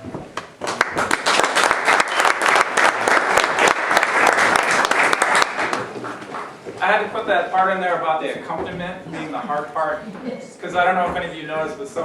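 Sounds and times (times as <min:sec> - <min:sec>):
audience applauding: 0:00.4 - 0:06.6.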